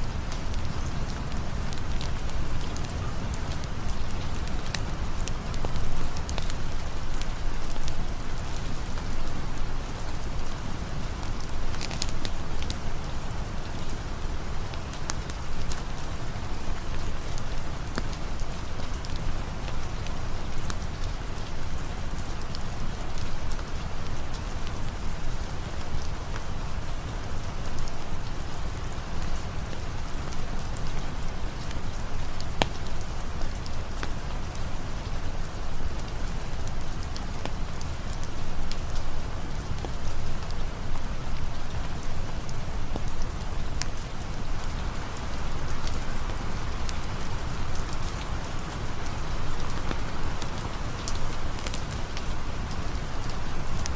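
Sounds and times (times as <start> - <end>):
rain falling: 0.0 - 53.9
drips and ticks: 0.2 - 10.6, 11.2 - 14.0, 14.6 - 53.9.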